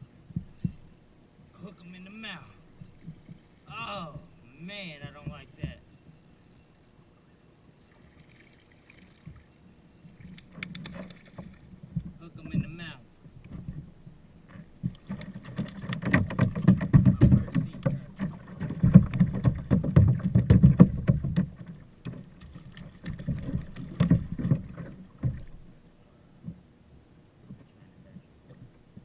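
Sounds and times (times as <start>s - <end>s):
water sounds: 0.0s - 26.6s
knocks and clatter against kayak hull: 2.8s - 3.5s, 10.2s - 25.8s.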